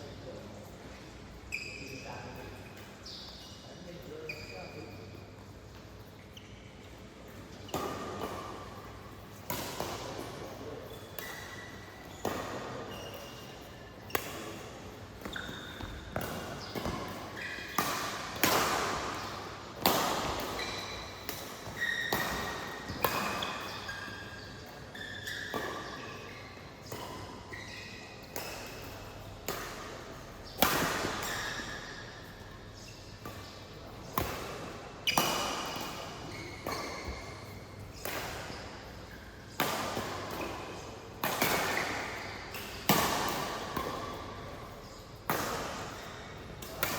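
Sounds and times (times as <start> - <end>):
shoe squeaks on court floor: 0.1 - 8.6, 10.0 - 18.3, 20.2 - 39.4
racket hitting shuttlecock: 7.7 - 24.2, 26.8 - 38.9, 39.5 - 46.9.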